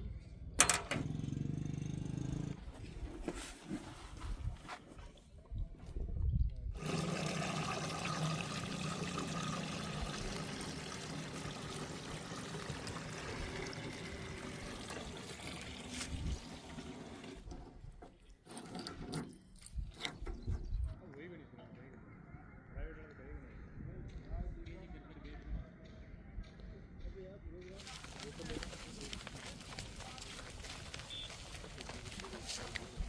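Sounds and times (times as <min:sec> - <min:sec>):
loose earth pouring: 0:06.8 - 0:17.6, 0:27.8 - 0:33.0.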